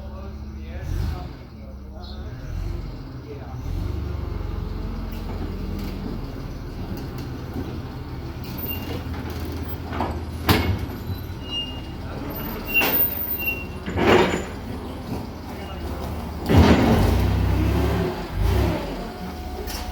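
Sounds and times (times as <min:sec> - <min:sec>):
heavy engine idling: 0:00.0 - 0:19.9.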